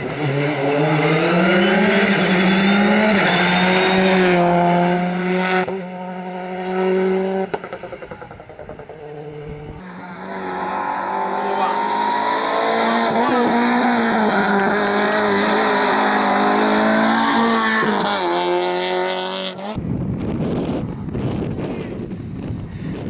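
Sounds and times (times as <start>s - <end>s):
rally car engine revving high: 0.0s - 19.8s
wind noise on microphone: 9.4s - 9.8s, 19.7s - 23.0s.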